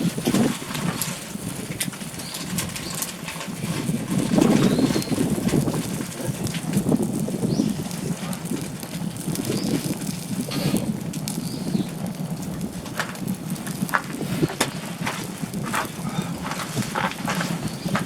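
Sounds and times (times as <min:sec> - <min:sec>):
campfire crackling: 0:00.0 - 0:18.0
low rumble: 0:00.0 - 0:18.0
sharp pops: 0:04.2 - 0:18.0.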